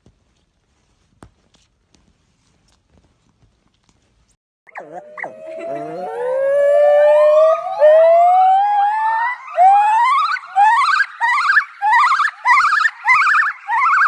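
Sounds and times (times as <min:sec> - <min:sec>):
dog yelping: 0:04.7 - 0:06.0
dog howling: 0:04.7 - 0:08.4.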